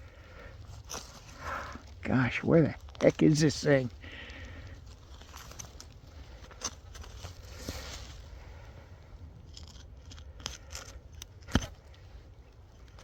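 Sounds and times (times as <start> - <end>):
digging tool scraping dirt: 0.3 - 2.0, 4.4 - 8.5, 9.4 - 12.1.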